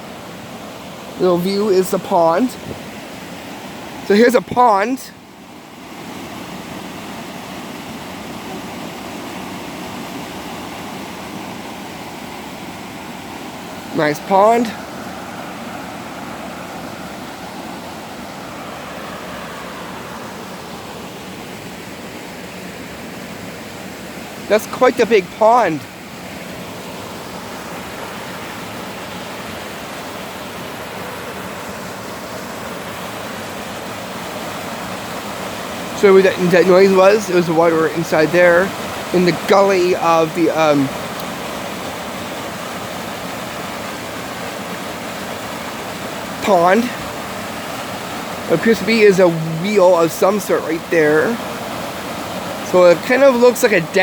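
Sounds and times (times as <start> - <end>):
rushing water: 0.0 - 54.0
water running: 36.0 - 41.3, 48.5 - 51.4, 52.6 - 54.0.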